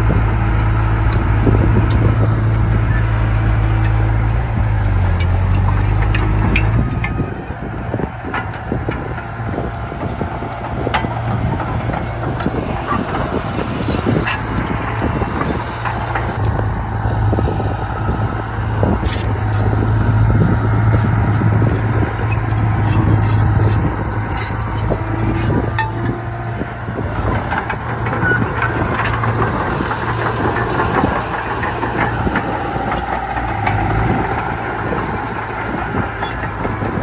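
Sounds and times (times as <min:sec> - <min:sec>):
bulldozer diesel engine running: 0:00.0 - 0:37.0
metallic clanks and knocks: 0:00.6 - 0:07.2, 0:19.0 - 0:37.0.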